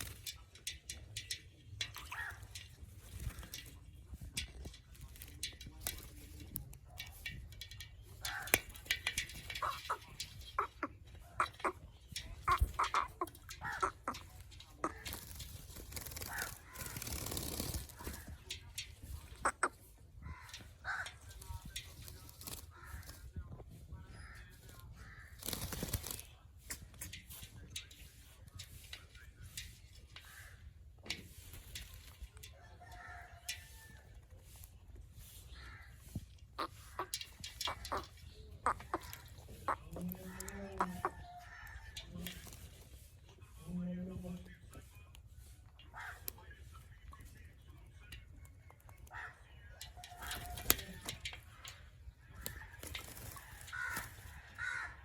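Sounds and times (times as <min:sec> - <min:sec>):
parrot calls and chatter: 0:00.0 - 0:55.0
parrot squawking and chattering: 0:02.0 - 0:02.6, 0:08.1 - 0:17.2, 0:19.0 - 0:21.4, 0:35.3 - 0:41.9.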